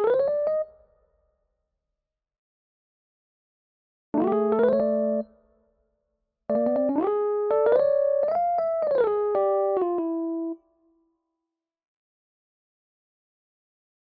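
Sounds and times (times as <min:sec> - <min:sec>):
synthesized keyboard chords: 0:04.2 - 0:05.3, 0:06.5 - 0:10.6.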